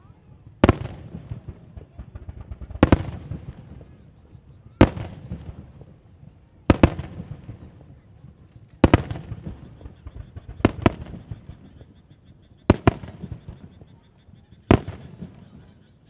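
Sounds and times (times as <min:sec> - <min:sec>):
firework shells bursting: 0:00.6 - 0:04.0, 0:08.4 - 0:11.9.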